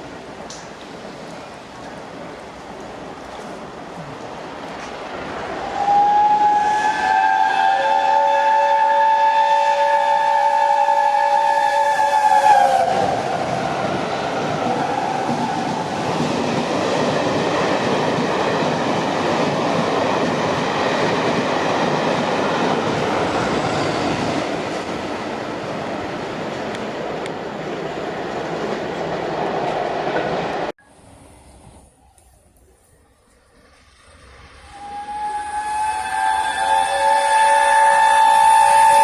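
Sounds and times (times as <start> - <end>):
steam locomotive chime whistle: 5.6 - 13.0, 34.4 - 39.0
train rolling rumble: 8.0 - 39.0.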